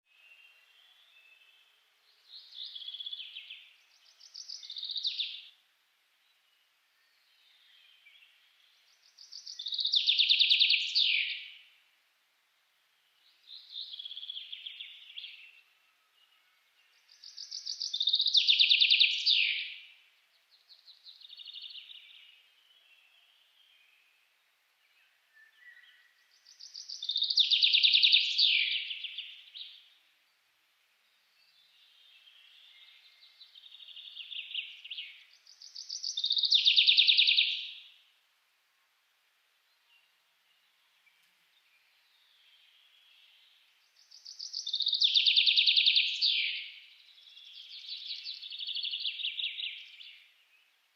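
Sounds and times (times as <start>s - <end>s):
bird singing fast trills: 26.4s - 29.8s, 32.5s - 37.9s, 43.1s - 50.3s.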